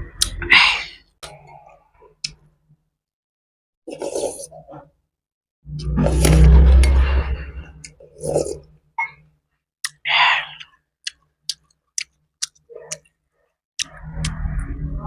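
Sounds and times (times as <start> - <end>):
wet chewing mouth clicks: 9.8 - 13.1, 13.8 - 14.4.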